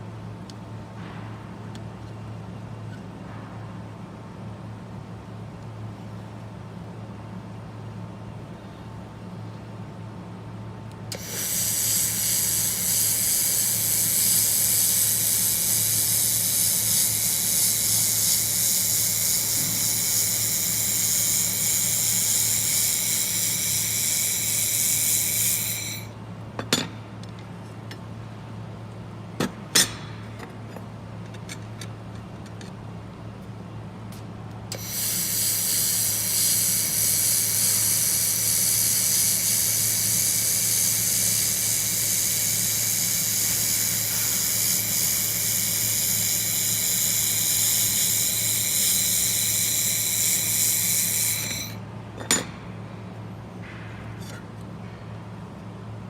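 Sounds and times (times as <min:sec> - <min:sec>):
laser welder high hiss: 0:11.1 - 0:26.1, 0:34.7 - 0:51.8.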